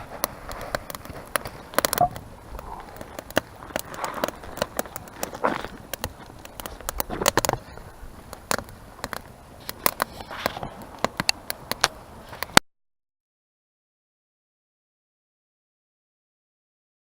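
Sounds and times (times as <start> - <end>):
fire popping and snapping: 0.0 - 12.6
wood fire crackling: 0.0 - 12.6.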